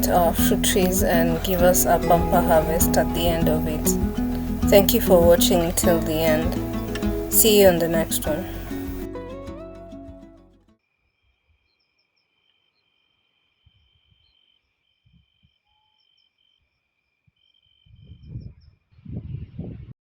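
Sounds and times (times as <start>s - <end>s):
small high chirps: 0.0s - 10.4s.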